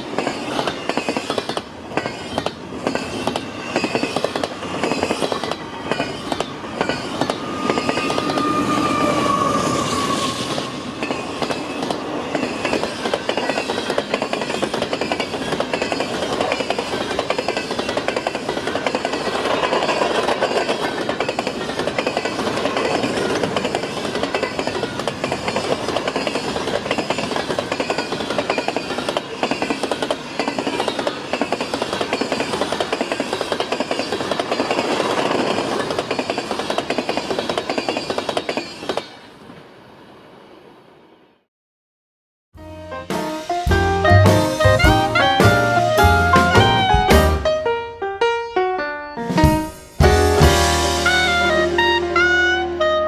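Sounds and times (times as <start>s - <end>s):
train wheels clacking on rail joints: 0.0s - 39.2s
high squeal: 4.8s - 12.8s.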